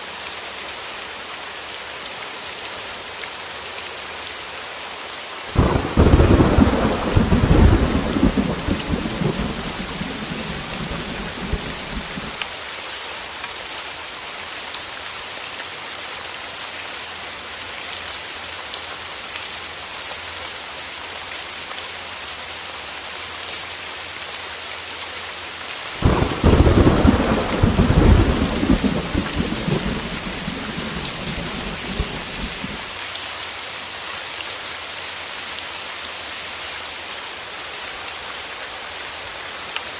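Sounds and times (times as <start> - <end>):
heavy rain hissing: 4.4 - 13.4, 25.8 - 34.3
thunder rumbling: 5.6 - 12.4, 26.0 - 32.9.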